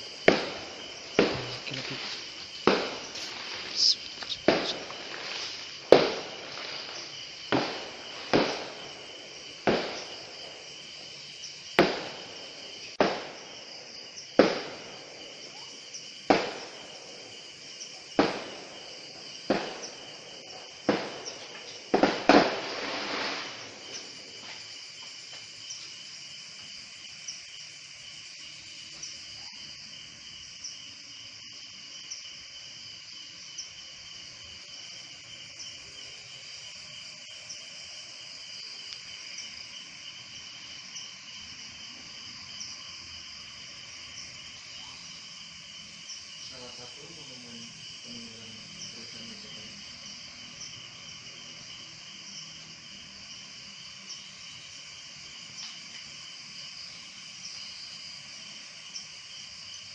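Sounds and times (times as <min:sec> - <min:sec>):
insects chirring: 0:00.0 - 0:59.9
sharp bangs: 0:00.2 - 0:06.9.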